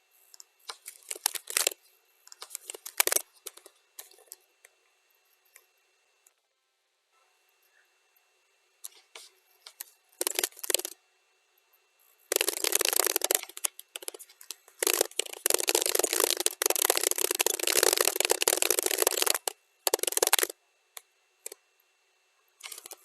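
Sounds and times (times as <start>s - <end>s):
computer keyboard typing: 0.4s - 4.4s, 9.7s - 11.0s, 12.3s - 20.5s, 22.6s - 23.0s.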